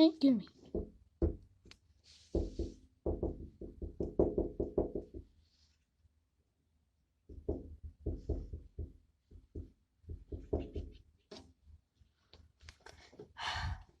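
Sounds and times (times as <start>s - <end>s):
irregular knocks and taps: 0.6s - 5.3s, 7.3s - 11.6s.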